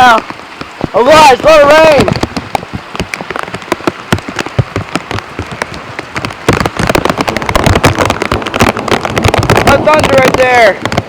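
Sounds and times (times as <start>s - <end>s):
raindrops tapping on plastic: 0.0s - 11.0s.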